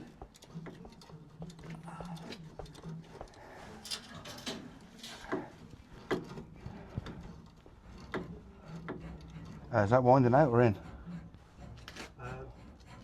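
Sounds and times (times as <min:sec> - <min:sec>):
hand tools clicking and tapping: 0:00.0 - 0:09.6.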